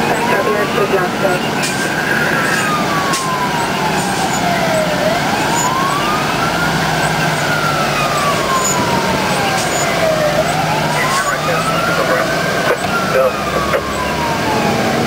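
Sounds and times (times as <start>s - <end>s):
engine and road noise: 0.0s - 15.0s
fire engine siren wailing: 0.0s - 15.0s.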